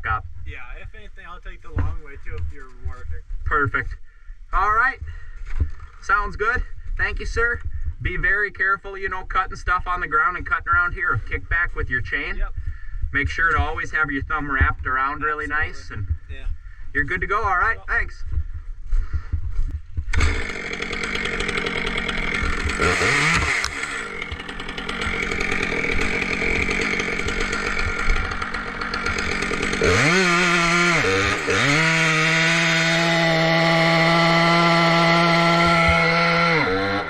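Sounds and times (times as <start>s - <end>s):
chainsaw running and revving: 20.1s - 37.0s.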